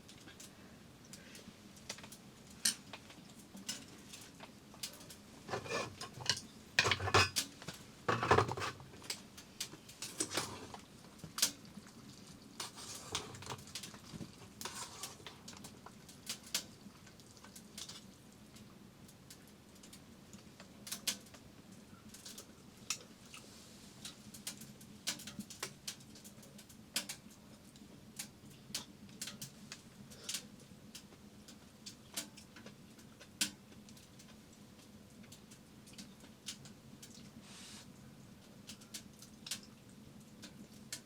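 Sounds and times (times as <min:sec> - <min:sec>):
dishes and utensils clinking: 0:05.5 - 0:07.4, 0:08.1 - 0:08.9.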